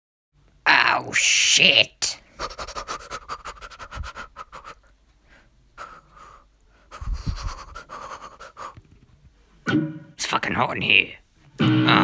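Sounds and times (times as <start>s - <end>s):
person panting rapidly: 2.1s - 8.9s.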